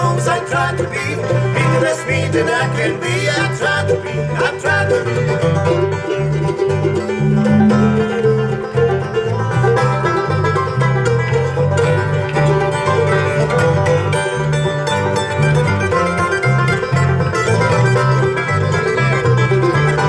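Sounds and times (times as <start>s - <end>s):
banjo picking: 0.0s - 20.0s
bluegrass band playing: 0.0s - 20.0s
person singing: 7.0s - 8.9s.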